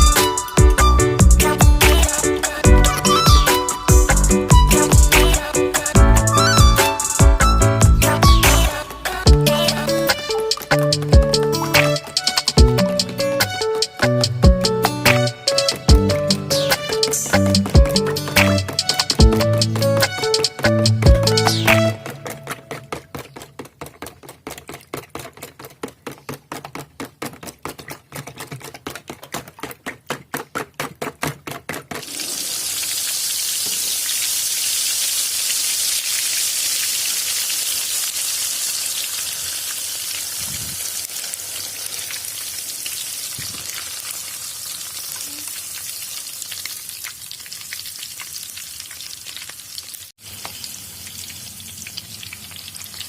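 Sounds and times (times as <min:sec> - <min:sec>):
egg being stirred rhythmically: 0:00.0 - 0:32.5
egg sizzling in hot oil: 0:32.0 - 0:53.0.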